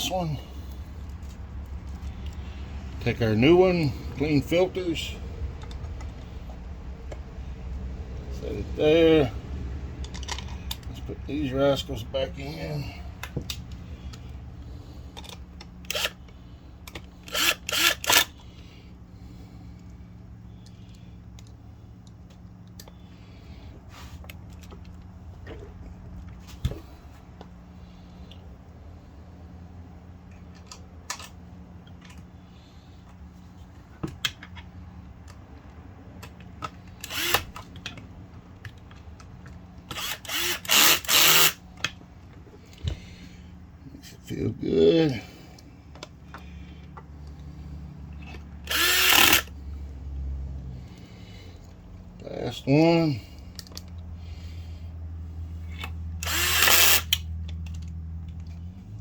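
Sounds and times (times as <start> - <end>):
small clicks of parts handled: 10.0 - 11.0, 15.1 - 18.6, 20.6 - 23.0, 30.2 - 32.3, 33.0 - 43.1, 45.5 - 47.5, 53.4 - 54.1, 55.6 - 58.7
power driver driving screws: 15.8 - 16.2, 16.9 - 18.4, 36.9 - 37.8, 39.9 - 41.6, 48.3 - 49.6, 55.7 - 57.3.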